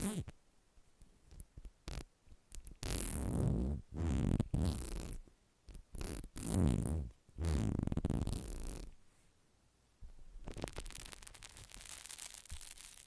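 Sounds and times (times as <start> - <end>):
scratchy rubbing strokes: 10.4 - 13.0.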